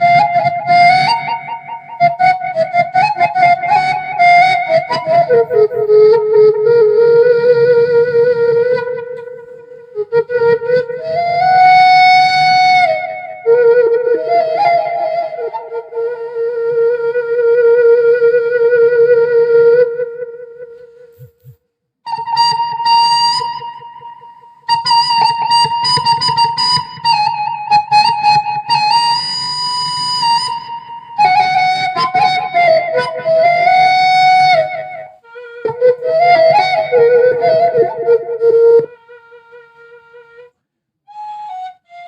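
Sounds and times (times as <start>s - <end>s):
bamboo flute melody: 0.0s - 42.0s.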